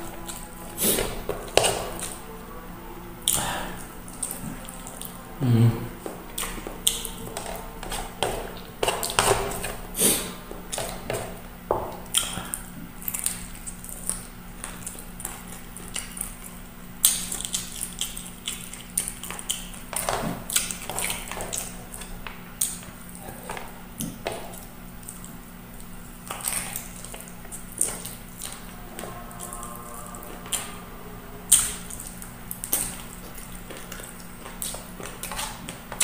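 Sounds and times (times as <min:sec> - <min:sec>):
low steady hum: 0:00.0 - 0:36.0
chewing and lip-smacking: 0:12.0 - 0:29.1, 0:31.5 - 0:36.0.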